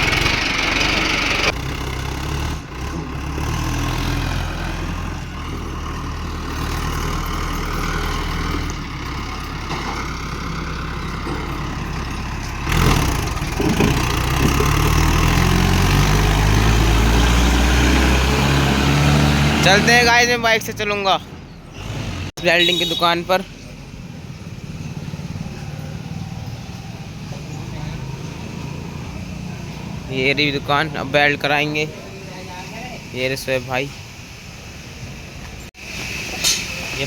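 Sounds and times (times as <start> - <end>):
tractor diesel engine revving: 0.0 - 35.0.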